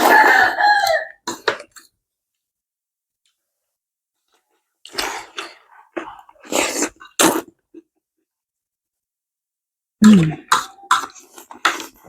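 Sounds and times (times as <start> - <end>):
rooster crowing: 0.0 - 1.2
breathy eating mouth noises: 4.8 - 7.5, 10.0 - 12.0.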